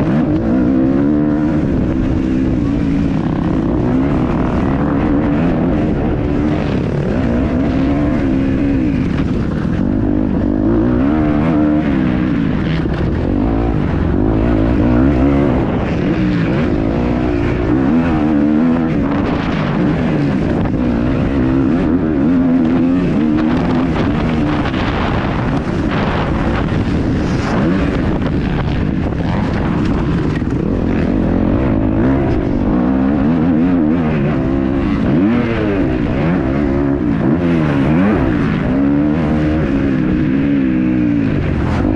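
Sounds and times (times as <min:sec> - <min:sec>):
motocross engine revving: 0:00.0 - 0:41.9.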